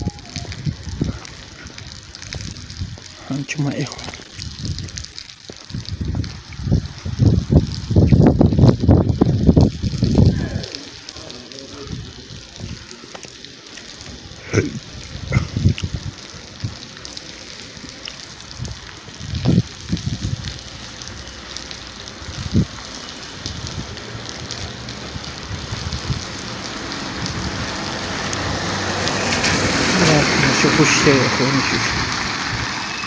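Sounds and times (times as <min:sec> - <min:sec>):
wind buffeting microphone: 0:00.0 - 0:03.2, 0:04.2 - 0:10.8, 0:14.8 - 0:16.9, 0:18.4 - 0:20.6, 0:22.2 - 0:24.0, 0:25.1 - 0:30.0
rain on a wet street: 0:00.0 - 0:33.0.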